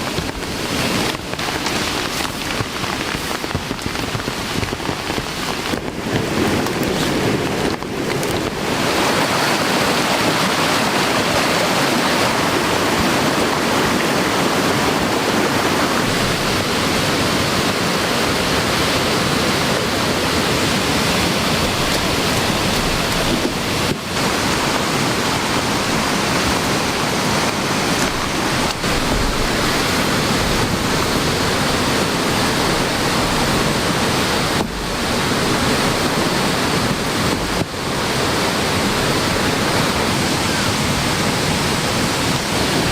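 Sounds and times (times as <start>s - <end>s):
heavy rain: 0.0s - 42.9s
rushing mountain stream: 0.0s - 42.9s.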